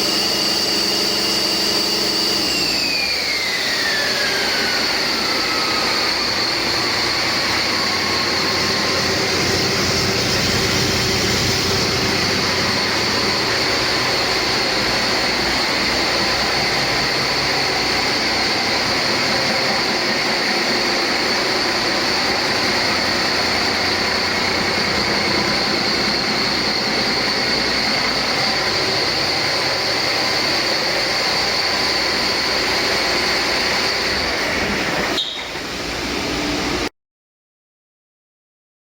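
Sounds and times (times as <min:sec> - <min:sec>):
high whine: 0:00.0 - 0:36.9
diesel engine running: 0:04.4 - 0:35.1.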